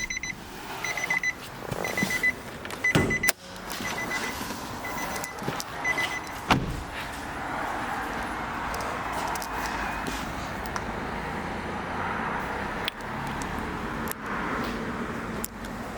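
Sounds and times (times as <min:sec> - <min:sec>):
car warning chime beeps: 0:00.0 - 0:06.7
clunks: 0:00.0 - 0:07.0
sharp thump: 0:06.5 - 0:07.0.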